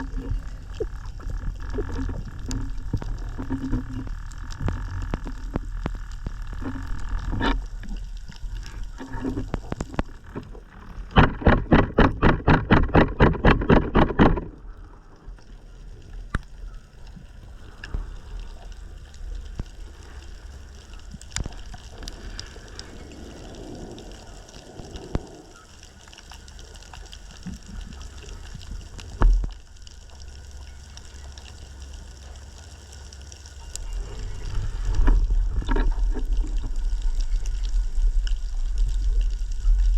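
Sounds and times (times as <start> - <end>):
rapid underwater pulses: 0.0 - 15.4, 33.7 - 39.9
underwater wash of water: 0.0 - 16.3, 17.2 - 30.7, 31.6 - 39.9.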